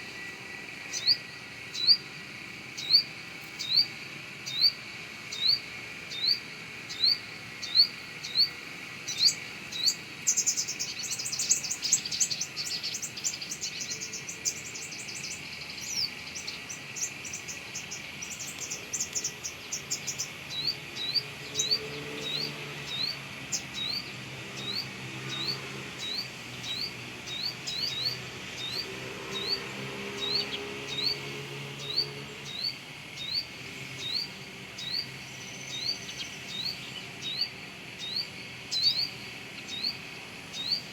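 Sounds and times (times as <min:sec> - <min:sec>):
bird chirping: 0:00.0 - 0:40.9
insect-like hiss: 0:00.9 - 0:28.8.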